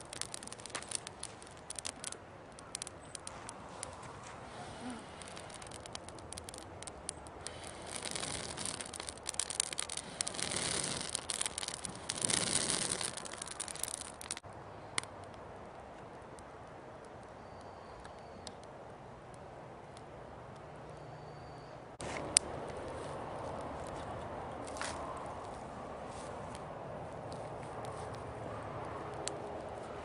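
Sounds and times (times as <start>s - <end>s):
campfire crackling and popping: 0.0s - 20.7s, 27.2s - 30.0s
hiss: 4.5s - 5.8s, 7.4s - 9.1s.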